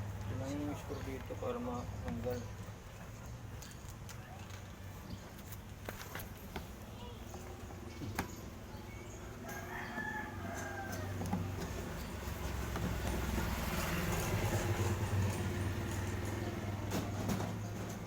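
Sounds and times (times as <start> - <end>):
rooster crowing: 9.4 - 11.6.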